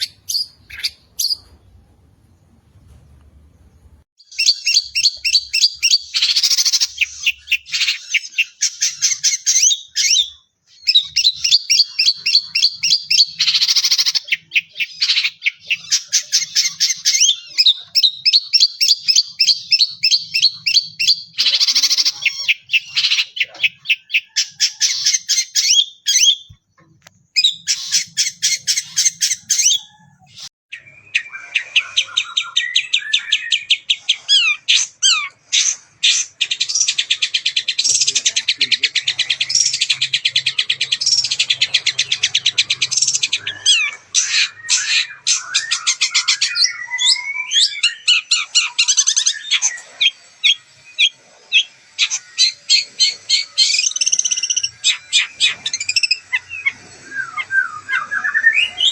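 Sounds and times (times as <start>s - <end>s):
harsh squawks: 0.0s - 1.6s, 4.2s - 26.6s, 27.4s - 58.9s
shrike singing fast song: 4.2s - 26.5s.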